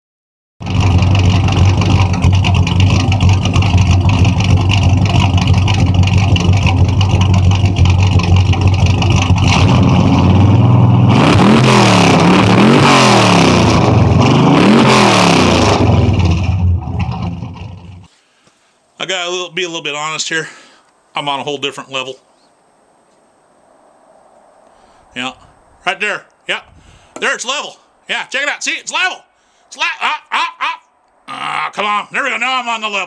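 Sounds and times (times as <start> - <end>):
car engine idling and revving: 0.6 - 18.1.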